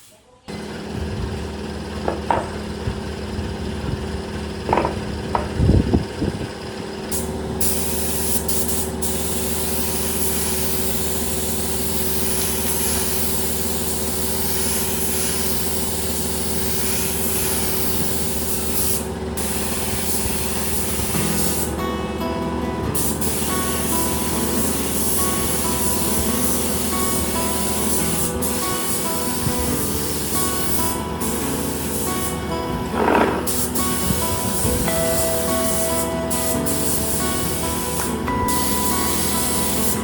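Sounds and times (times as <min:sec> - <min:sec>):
knocks: 0:04.7 - 0:05.6
spray gun hissing: 0:07.1 - 0:21.8, 0:22.9 - 0:40.0
machine humming: 0:19.1 - 0:40.0.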